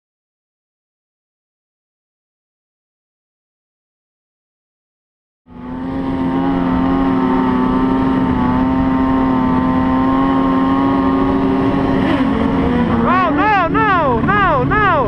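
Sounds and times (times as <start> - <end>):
steady engine drone: 5.5 - 15.0.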